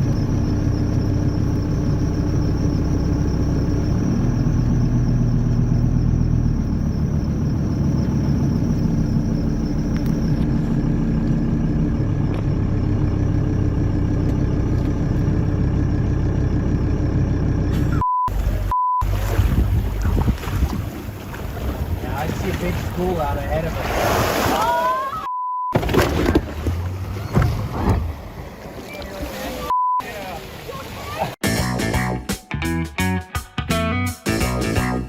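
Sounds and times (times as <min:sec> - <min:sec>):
motor vehicle engine drone: 0:00.0 - 0:23.8, 0:25.8 - 0:29.0
short beep: 0:17.8 - 0:19.1, 0:25.1 - 0:25.8, 0:29.7 - 0:30.1.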